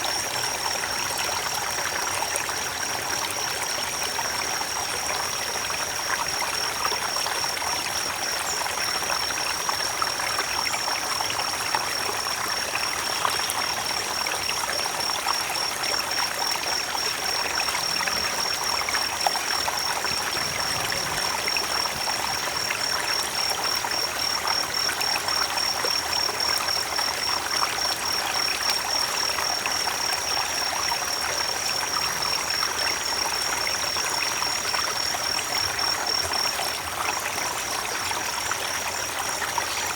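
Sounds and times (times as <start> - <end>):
creek water running: 0.0 - 39.9.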